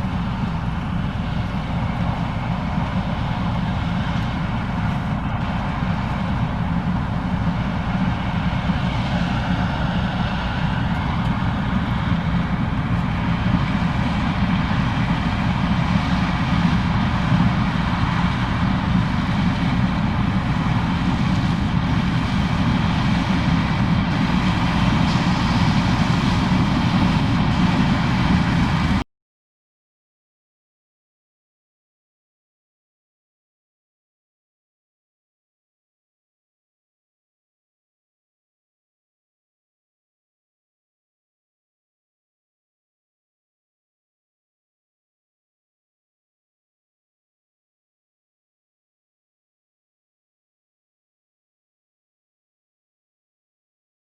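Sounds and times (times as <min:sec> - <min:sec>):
combine harvester drone: 0:00.0 - 0:29.0.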